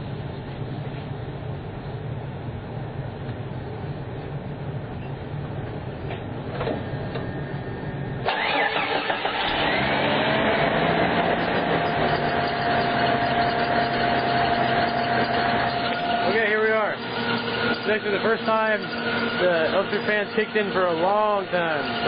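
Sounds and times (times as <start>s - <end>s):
radiator fan whine: 0.0s - 22.0s
car engine idling: 7.2s - 22.0s.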